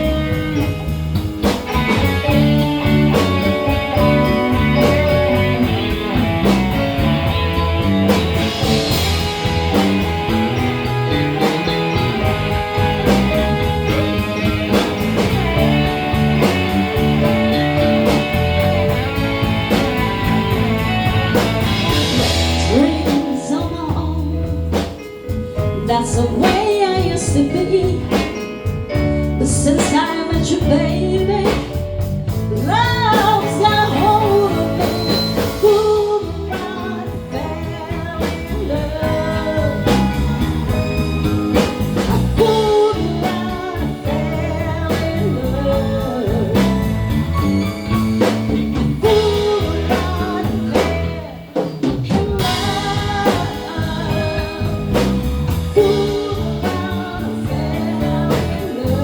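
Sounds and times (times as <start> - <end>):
drum kit: 0.0 - 59.0
guitar: 0.0 - 59.0
person singing: 8.4 - 25.2, 32.5 - 59.0.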